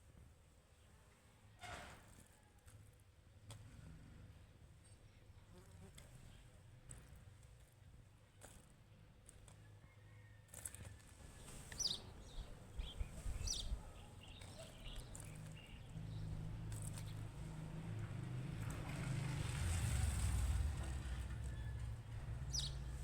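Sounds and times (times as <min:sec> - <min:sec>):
birds chirping: 0:11.8 - 0:17.2, 0:22.4 - 0:23.0.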